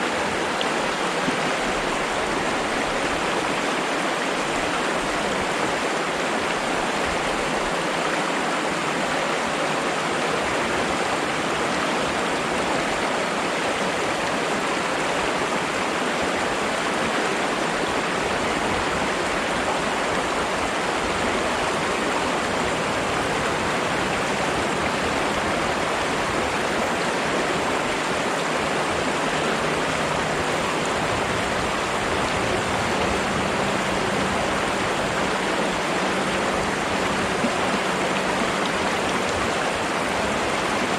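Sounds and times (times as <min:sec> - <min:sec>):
water flowing over rocks: 0:00.0 - 0:40.9.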